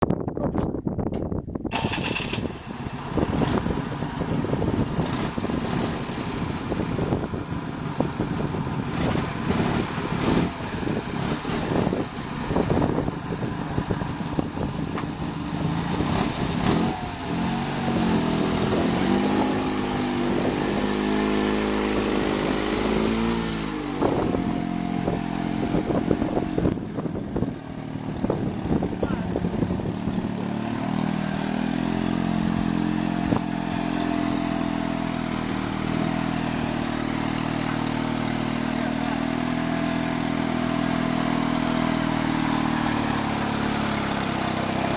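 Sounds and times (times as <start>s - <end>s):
engine knocking and clatter: 1.7s - 23.3s, 24.0s - 44.9s
small tractor engine running: 1.7s - 44.9s.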